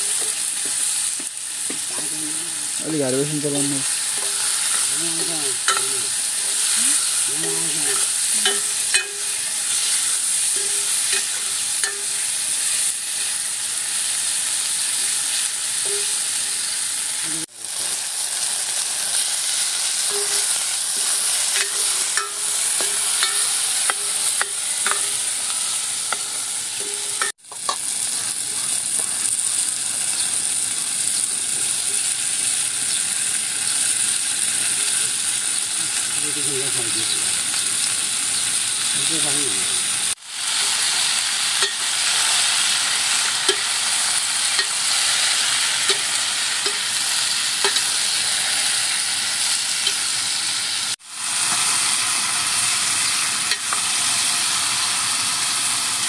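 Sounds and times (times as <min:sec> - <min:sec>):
masala sizzling in a pan: 0:00.0 - 0:56.0
metal ladle clinking on a pan: 0:05.7 - 0:05.9, 0:07.9 - 0:09.4, 0:10.5 - 0:12.2, 0:21.6 - 0:25.2, 0:47.6 - 0:47.9.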